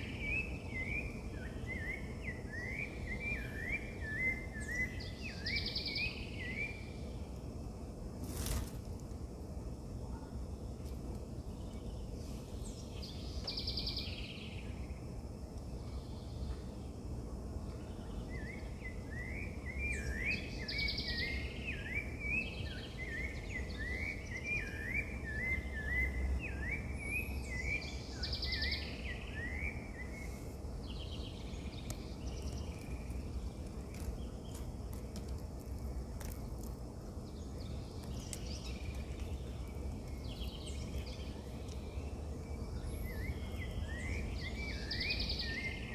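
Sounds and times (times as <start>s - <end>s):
low background rumble: 26.2s - 45.9s.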